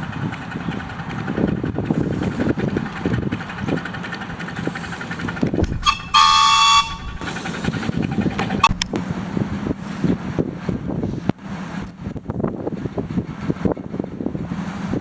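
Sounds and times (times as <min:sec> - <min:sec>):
train rumbling with knocks: 0:00.0 - 0:15.0
locomotive horn blast: 0:05.6 - 0:07.8.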